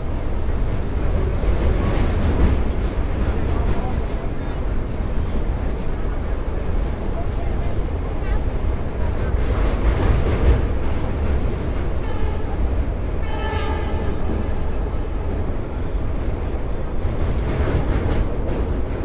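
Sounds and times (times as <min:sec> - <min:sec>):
passenger train rumbling: 0:00.0 - 0:19.0
train horn: 0:12.0 - 0:14.9.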